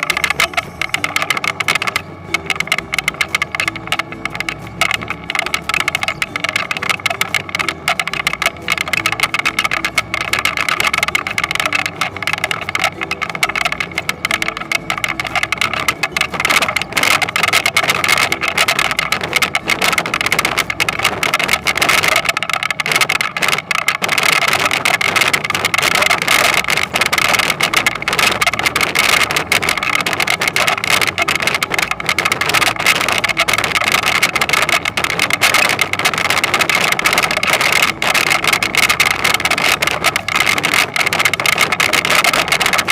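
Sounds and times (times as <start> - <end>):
harvester engine running: 0.0 - 42.9
rattling machinery clatter: 0.0 - 42.9.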